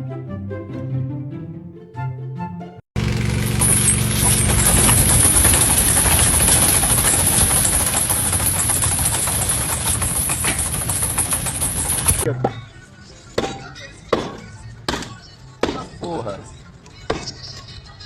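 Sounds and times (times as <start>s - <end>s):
machine clatter: 3.0s - 12.3s.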